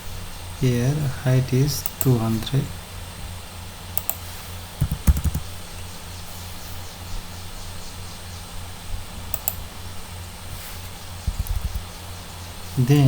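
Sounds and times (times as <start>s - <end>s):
low electrical hum: 0.0s - 13.0s
mouse double click: 4.0s - 4.2s, 9.3s - 9.6s
keyboard keystrokes: 4.8s - 5.5s, 11.3s - 11.8s.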